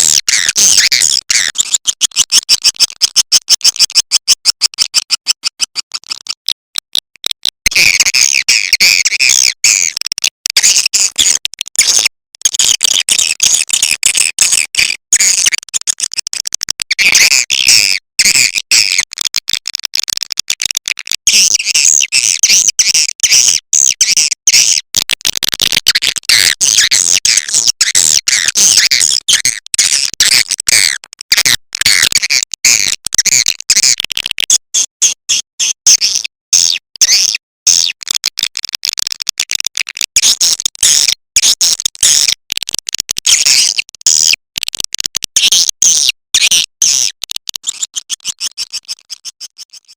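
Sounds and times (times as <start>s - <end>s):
fast clicking: 38.0s - 40.9s, 41.8s - 45.3s.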